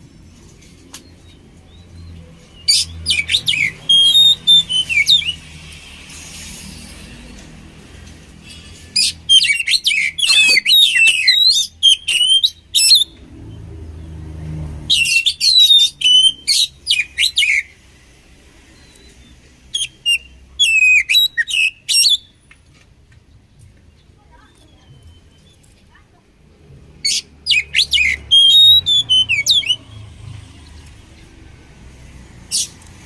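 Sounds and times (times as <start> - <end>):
bird whistling and warbling: 2.7 - 5.4, 9.0 - 13.2, 14.9 - 17.8, 18.8 - 22.3, 27.0 - 30.0.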